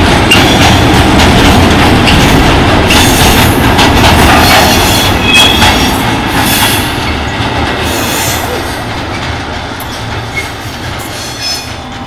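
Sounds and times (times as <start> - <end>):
train wheels rumbling on rails: 0.0 - 12.0
high wheel squeal: 9.9 - 11.8.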